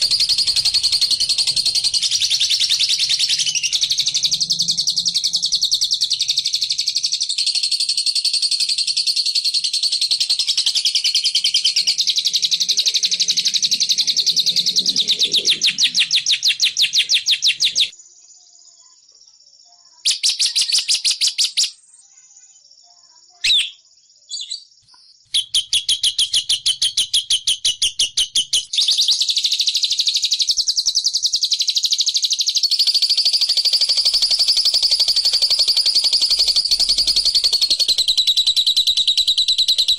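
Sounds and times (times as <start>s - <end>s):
bird chattering high chirps: 0.0s - 18.0s, 19.9s - 22.0s, 23.3s - 39.9s.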